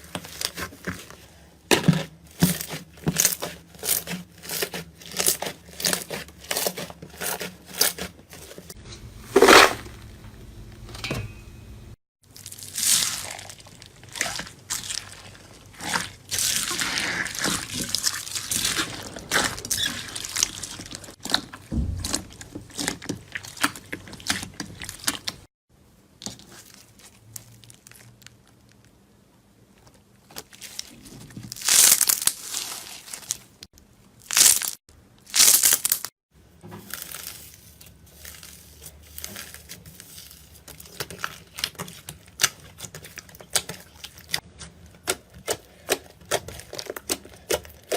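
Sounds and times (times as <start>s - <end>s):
sharp slime crunches: 31.5s - 33.4s, 34.2s - 36.1s.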